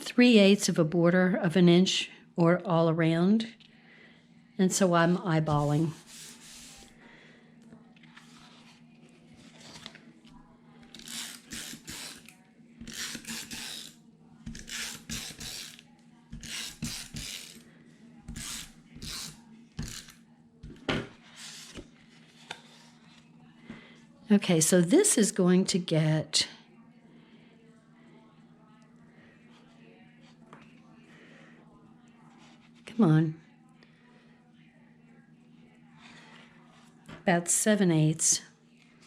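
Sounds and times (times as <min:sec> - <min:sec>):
faint steady hum: 0:00.0 - 0:39.0
paper rustling on a table: 0:08.0 - 0:10.1.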